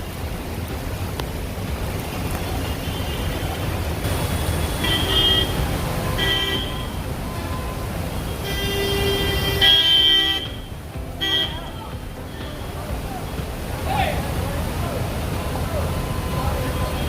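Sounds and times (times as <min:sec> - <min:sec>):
street traffic rumble: 0:00.0 - 0:17.0
vehicle horn honking: 0:04.2 - 0:12.8.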